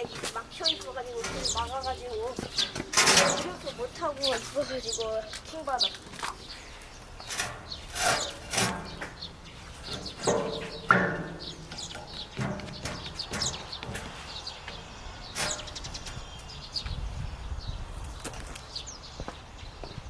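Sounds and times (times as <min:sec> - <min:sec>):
small birds chirping: 0:00.0 - 0:20.0
sharp knocks and clunks: 0:02.4 - 0:03.7, 0:07.2 - 0:16.2.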